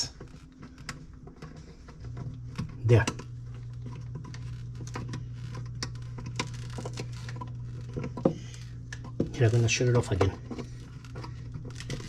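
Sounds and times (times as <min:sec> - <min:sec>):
refrigerator compressor humming: 0:00.0 - 0:12.0.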